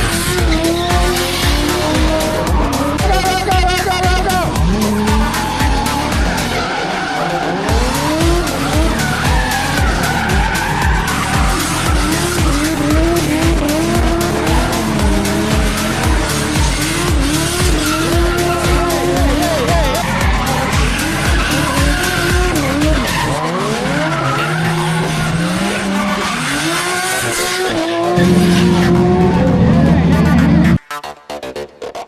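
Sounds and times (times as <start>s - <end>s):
dance music with kick drum: 0.0s - 6.4s, 7.7s - 23.1s
car engine revving: 0.0s - 30.8s
tires squealing and skidding: 0.0s - 30.8s.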